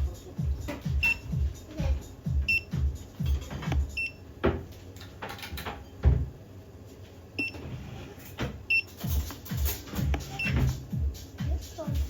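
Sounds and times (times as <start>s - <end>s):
high electronic beeps: 1.0s - 1.3s.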